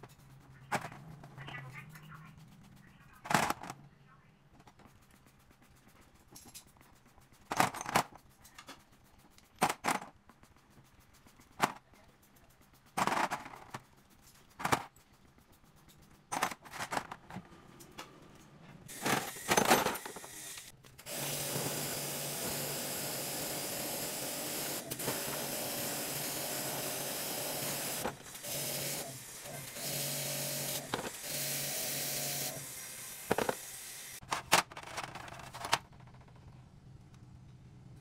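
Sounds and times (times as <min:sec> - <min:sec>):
electric power tool running: 0:18.9 - 0:34.2.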